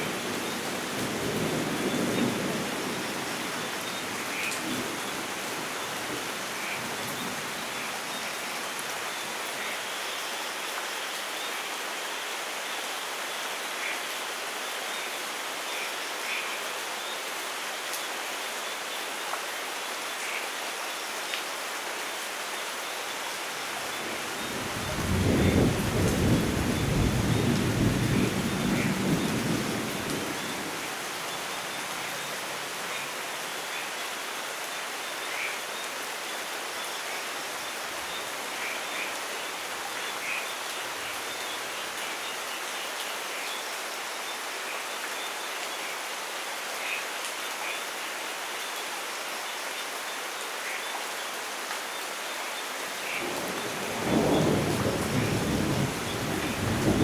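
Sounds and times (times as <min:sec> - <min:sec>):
heavy rain: 0:00.0 - 0:57.0
thunder rumbling: 0:24.4 - 0:30.8, 0:53.2 - 0:57.0.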